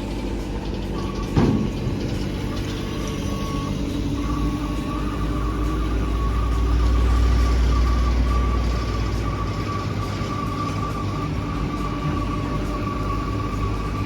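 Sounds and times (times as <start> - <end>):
heavy vehicle engine rumble: 0.0 - 14.0
reversing alarm beeping: 0.0 - 14.0.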